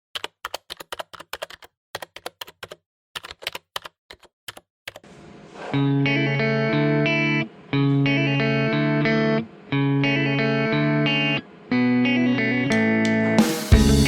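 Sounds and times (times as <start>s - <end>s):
computer keyboard typing: 0.2s - 5.0s
distorted electric guitar music: 5.8s - 14.0s.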